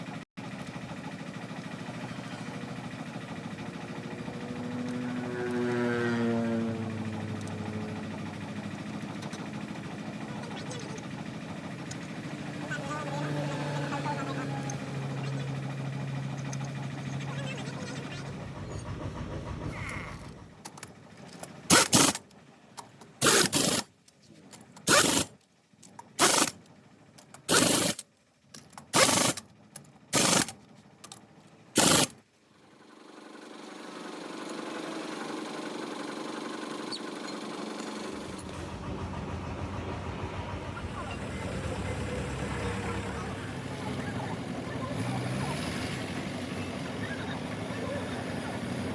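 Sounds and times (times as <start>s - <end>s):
steady machine noise: 0.0s - 24.0s, 24.8s - 48.9s
pneumatic impact wrench bursts: 21.6s - 22.3s, 23.2s - 23.9s, 24.8s - 25.4s, 26.1s - 26.6s, 27.4s - 28.1s, 28.9s - 29.5s, 30.1s - 30.6s, 31.8s - 32.2s.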